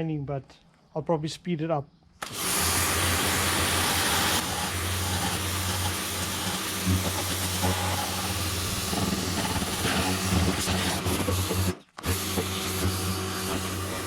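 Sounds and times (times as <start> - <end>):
power tool motor hum: 2.2 - 14.0
disc grinding paint off metal: 3.0 - 14.0.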